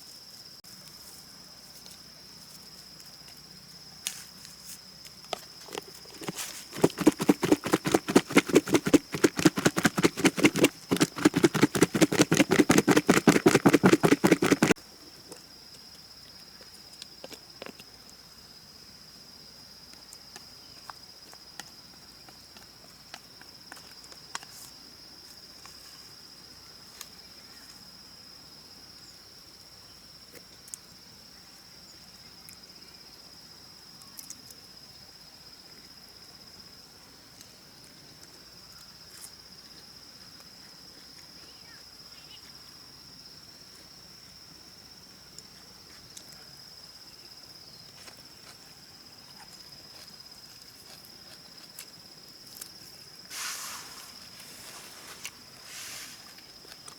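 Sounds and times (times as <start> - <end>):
insects droning: 0.0 - 56.9
rapid loud even strokes: 6.8 - 14.8.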